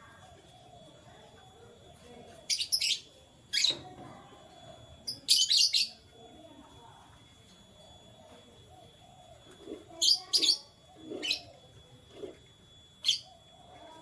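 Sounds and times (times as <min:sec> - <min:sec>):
canaries chirping: 0:08.8 - 0:11.7.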